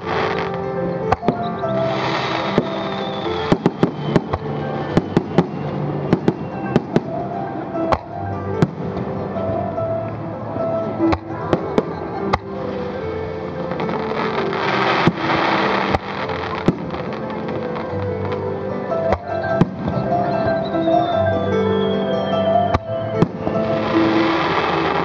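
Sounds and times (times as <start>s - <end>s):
fireworks bangs and crackles: 0.0s - 7.2s, 13.7s - 18.1s, 22.8s - 25.0s
music playing: 0.0s - 25.0s.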